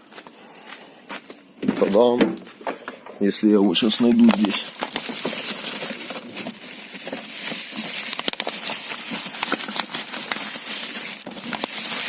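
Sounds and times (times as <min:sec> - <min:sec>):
packaging rustling: 0:03.8 - 0:12.0.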